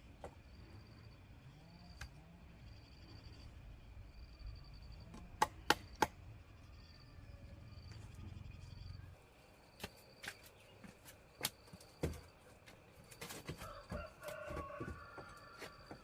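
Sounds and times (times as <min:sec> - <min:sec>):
rooster crowing: 0:13.5 - 0:16.0.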